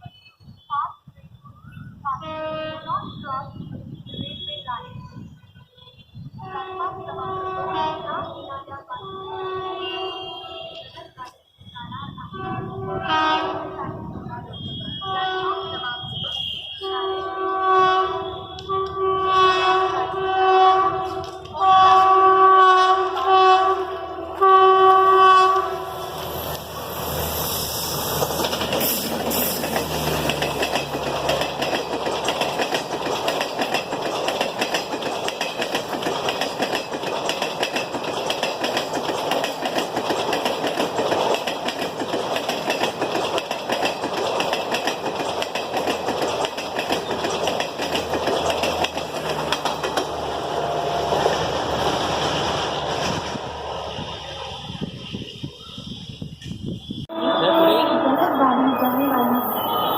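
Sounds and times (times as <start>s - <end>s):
train passing with rushing rumble: 0.0s - 59.9s
train horn blast: 2.2s - 3.2s, 4.2s - 11.1s, 12.3s - 26.4s, 57.1s - 59.9s
wheels clattering over rail joints: 27.9s - 55.3s.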